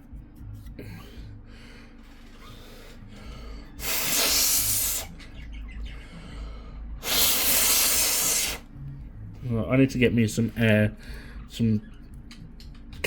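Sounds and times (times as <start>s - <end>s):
person blowing hard by mouth: 3.8s - 5.1s, 7.0s - 8.6s.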